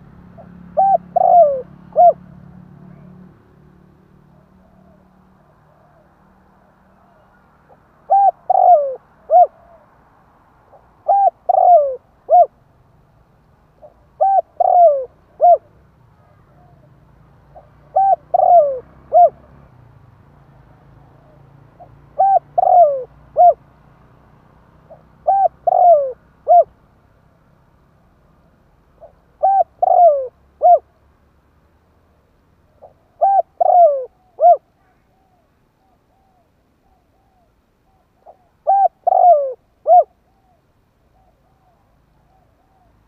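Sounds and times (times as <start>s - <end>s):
dove cooing: 0.0s - 3.0s, 6.9s - 9.9s, 10.7s - 12.6s, 13.8s - 19.6s, 21.0s - 23.7s, 24.8s - 26.7s, 28.9s - 31.0s, 32.7s - 43.0s.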